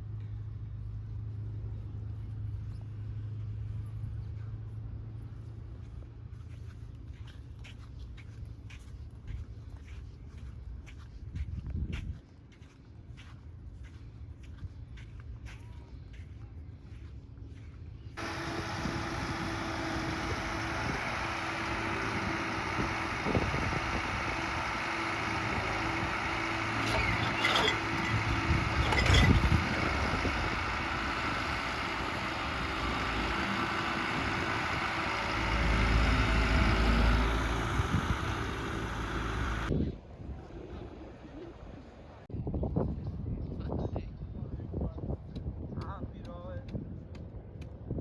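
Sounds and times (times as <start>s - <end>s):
engine hum and road noise: 0.0s - 39.8s
vehicle passing rumble: 18.2s - 39.7s.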